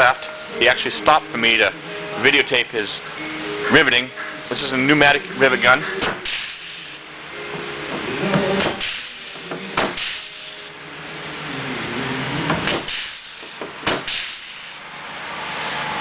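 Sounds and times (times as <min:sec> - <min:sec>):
pneumatic rivet gun bursts: 0:06.0 - 0:06.8, 0:08.6 - 0:10.4, 0:12.6 - 0:14.8.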